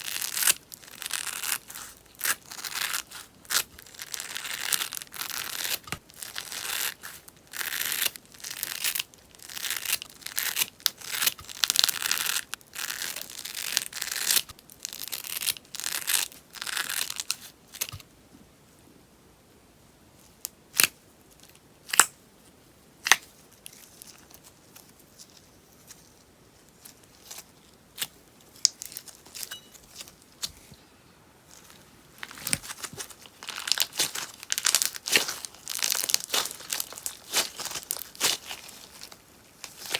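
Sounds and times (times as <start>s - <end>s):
slime crackling and popping: 32.2s - 39.9s.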